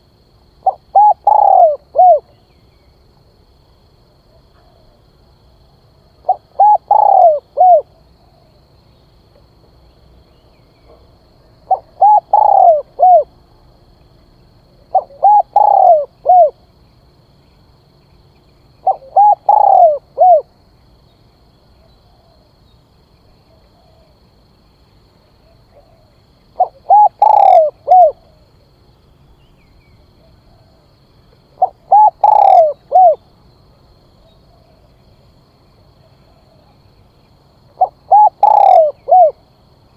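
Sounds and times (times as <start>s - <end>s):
dove cooing: 0.6s - 2.3s, 6.2s - 8.5s, 11.7s - 13.3s, 14.9s - 16.6s, 18.8s - 20.5s, 25.4s - 28.6s, 31.6s - 33.2s, 37.7s - 39.4s.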